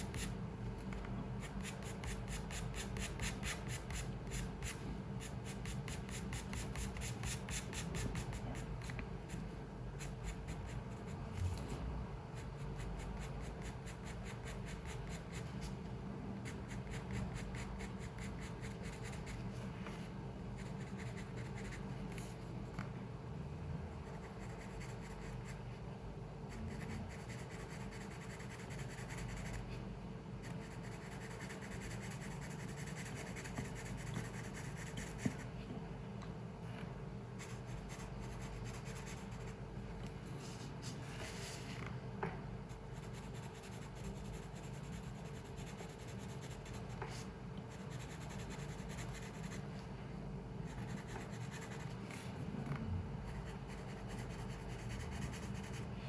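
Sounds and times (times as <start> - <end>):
pencil scratching on paper: 0.0 - 0.4, 1.4 - 15.7, 16.4 - 19.5, 20.6 - 22.4, 24.0 - 25.7, 26.5 - 29.8, 30.4 - 35.5, 37.4 - 39.6, 42.7 - 49.8, 50.6 - 52.4, 53.2 - 55.9.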